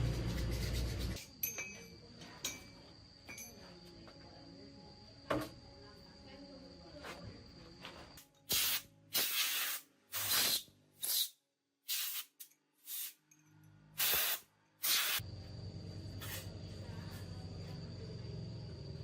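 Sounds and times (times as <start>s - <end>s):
short spray bursts: 8.5s - 13.2s, 14.0s - 15.2s.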